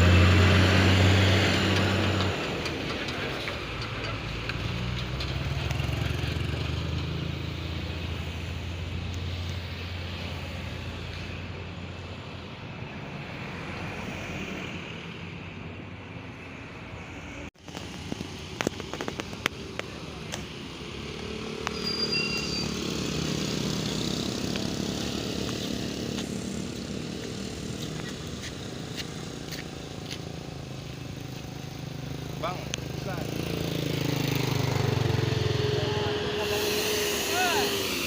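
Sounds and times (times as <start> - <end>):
traffic passing: 0.0 - 38.0
sharp clicks and knocks: 17.6 - 20.5.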